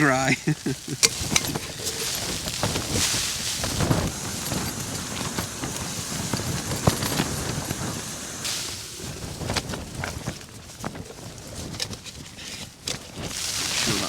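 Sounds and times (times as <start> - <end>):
tent fabric flapping: 0.0 - 14.0
wind buffeting tent: 0.0 - 14.0
gear clicking and knocking: 0.4 - 8.4.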